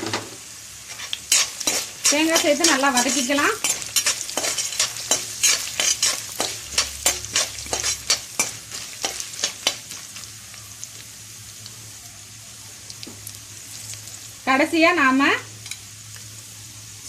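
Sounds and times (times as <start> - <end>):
food sizzling in oil: 0.0 - 17.0
spoon scraping and stirring: 0.9 - 10.2.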